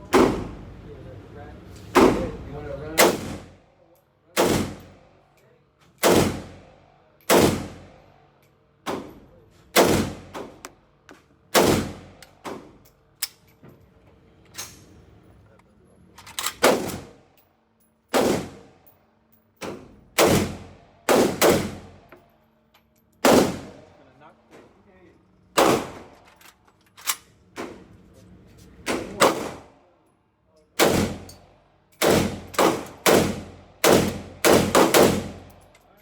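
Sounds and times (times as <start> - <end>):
gunshots with ringing tail: 18.1 - 18.7, 20.2 - 21.9, 23.2 - 23.8, 32.0 - 35.5.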